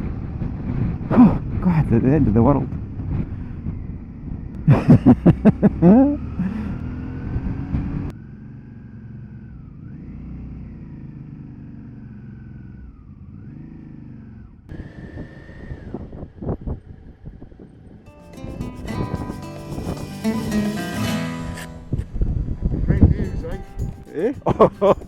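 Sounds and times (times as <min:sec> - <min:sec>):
motorcycle engine revving: 0:02.3 - 0:22.9.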